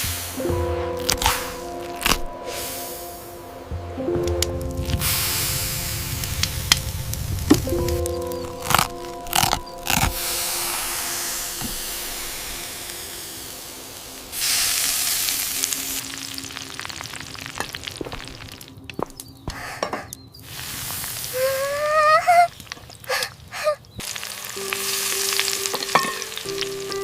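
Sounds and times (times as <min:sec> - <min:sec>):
fire crackling: 0:00.0 - 0:27.0
fish sizzling over a fire: 0:04.7 - 0:19.3, 0:20.4 - 0:23.1, 0:24.0 - 0:27.0.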